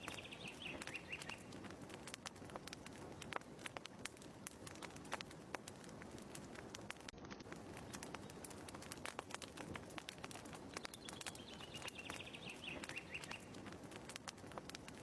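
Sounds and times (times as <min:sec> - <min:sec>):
faint chirping trill: 0:00.0 - 0:01.6, 0:10.7 - 0:13.5
wood fire crackling: 0:00.0 - 0:15.0.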